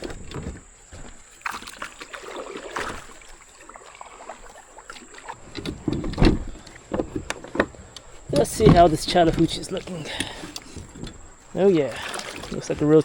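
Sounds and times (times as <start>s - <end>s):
knocks against kayak hull: 5.4s - 11.2s
loud thump: 5.7s - 7.2s.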